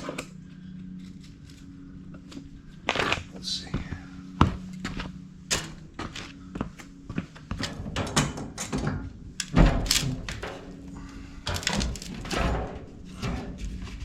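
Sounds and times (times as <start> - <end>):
steady low hum: 0.0 - 14.0
tools and metal fittings clanking: 7.6 - 14.0.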